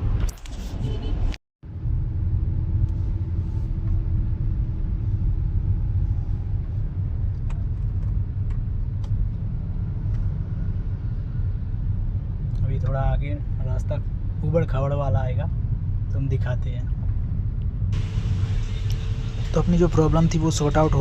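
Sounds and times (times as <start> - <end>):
road and engine rumble: 0.0 - 21.0.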